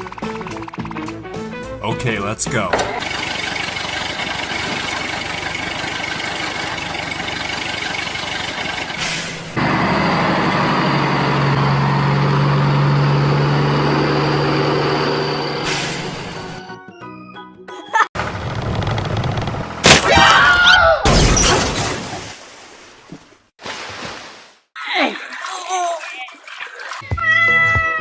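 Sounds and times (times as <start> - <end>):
vehicle engine running: 2.8 - 16.6, 18.2 - 19.8.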